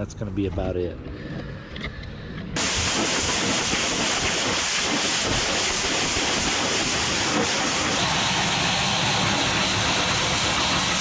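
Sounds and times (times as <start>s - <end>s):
pressure washer spraying metal: 2.6s - 11.0s.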